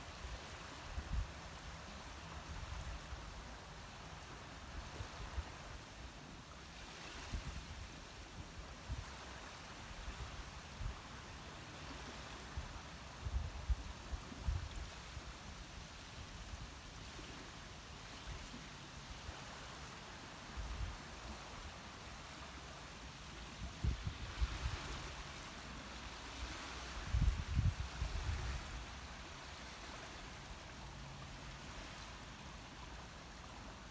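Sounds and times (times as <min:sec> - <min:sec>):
rushing water or rain: 0:00.0 - 0:33.9
wind buffeting microphone: 0:23.7 - 0:25.0, 0:27.0 - 0:28.8.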